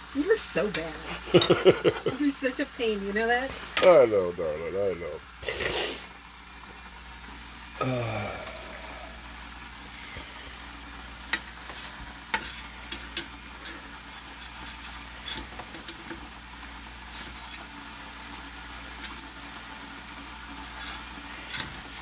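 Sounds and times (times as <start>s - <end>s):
pancake sizzling in oil: 0.0s - 22.0s.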